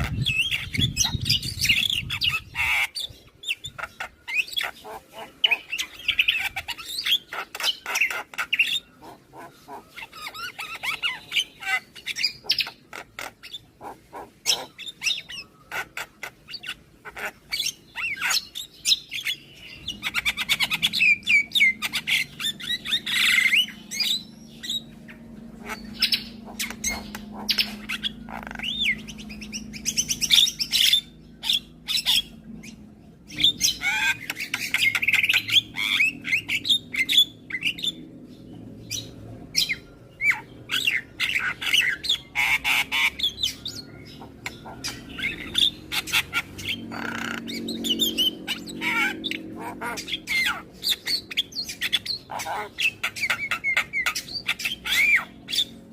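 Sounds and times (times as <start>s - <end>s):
bird singing chirps and squawks: 0.0s - 55.9s
low steady hum: 19.4s - 55.9s.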